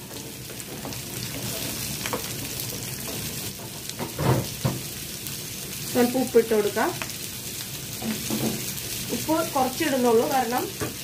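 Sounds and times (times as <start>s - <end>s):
onions sizzling in a frying pan: 0.0s - 11.0s
wooden spatula knocking on pan: 10.7s - 11.0s.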